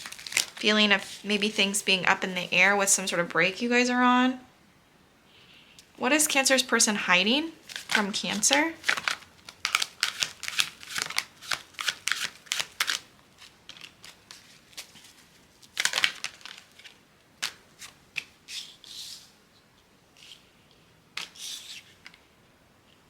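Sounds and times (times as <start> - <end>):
cards rustling: 0.0 - 1.8, 7.6 - 19.4, 21.2 - 22.3
cards being shuffled: 7.6 - 19.4, 20.2 - 20.5, 21.2 - 22.2.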